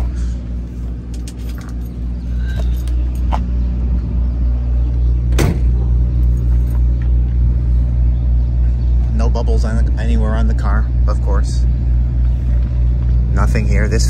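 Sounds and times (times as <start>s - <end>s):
car engine idling: 0.0s - 14.0s
car door shutting: 5.3s - 5.8s.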